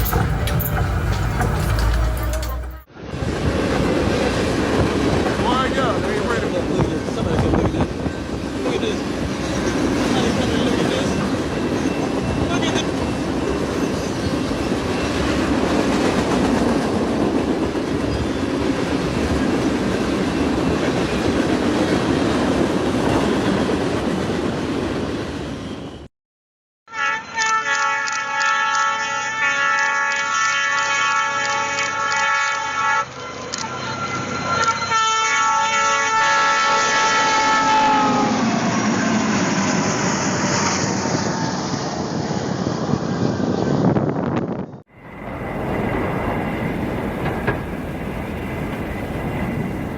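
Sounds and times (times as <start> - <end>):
train wheel clatter: 0.0 - 24.7, 45.1 - 49.9
train rumbling on rails: 0.0 - 26.1, 28.2 - 49.9
train horn chord: 26.9 - 38.7.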